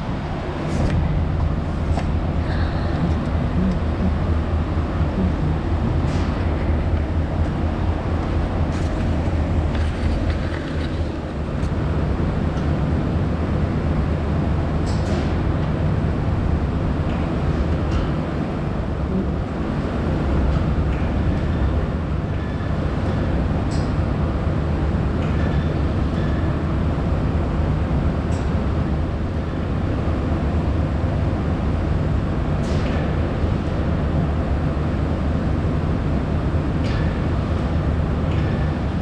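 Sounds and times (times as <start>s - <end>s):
diesel engine running: 0.0s - 13.6s.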